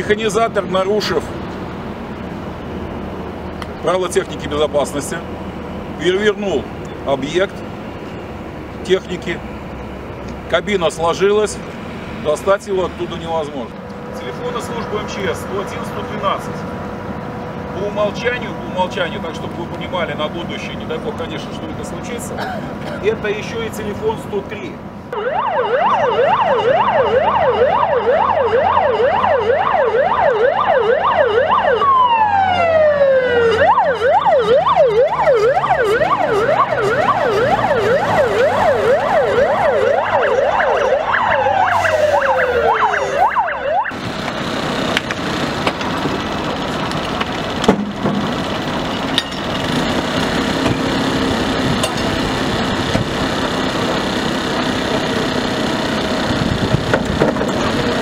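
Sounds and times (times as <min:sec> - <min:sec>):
engine running: 0:00.0 - 0:58.0
siren winding down: 0:25.1 - 0:44.0
siren yelping: 0:25.1 - 0:44.0.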